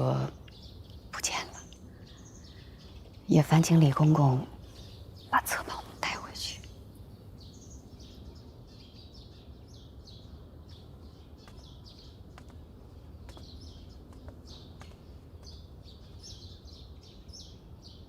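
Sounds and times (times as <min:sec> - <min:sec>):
low background hum: 0:00.0 - 0:18.0
small birds chirping: 0:00.0 - 0:18.0.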